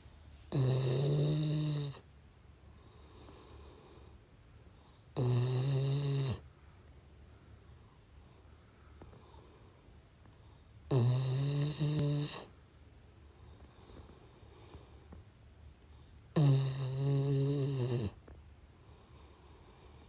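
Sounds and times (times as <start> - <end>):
dog snoring: 0.5 - 2.1, 2.8 - 4.2, 4.8 - 6.5, 10.8 - 12.6, 16.3 - 18.3.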